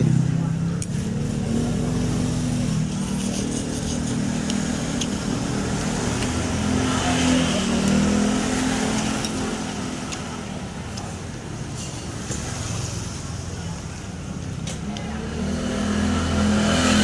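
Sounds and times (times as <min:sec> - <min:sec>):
passing vehicle engine: 0:00.0 - 0:10.4, 0:15.1 - 0:17.0.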